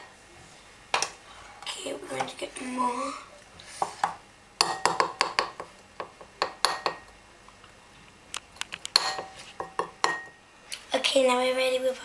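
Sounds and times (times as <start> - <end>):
metal spoon clinking against bowl: 8.9 - 10.4.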